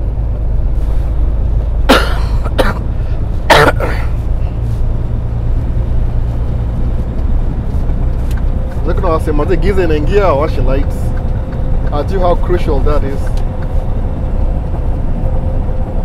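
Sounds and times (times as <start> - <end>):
truck diesel engine drone: 0.0 - 16.0
person coughing: 1.9 - 4.2.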